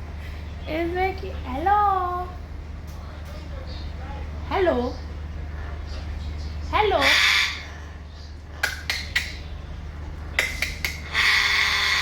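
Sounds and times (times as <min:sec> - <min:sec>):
parrot harsh rasping call: 0:07.0 - 0:08.0, 0:11.0 - 0:12.0
parrots clicking sharply: 0:08.6 - 0:09.4, 0:10.4 - 0:11.2.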